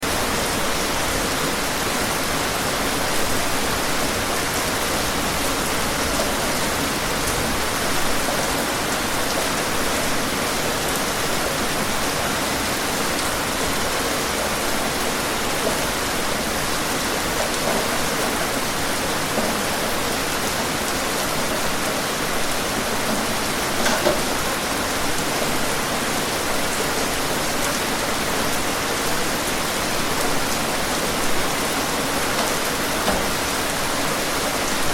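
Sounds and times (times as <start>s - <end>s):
heavy rain hissing: 0.0s - 34.9s.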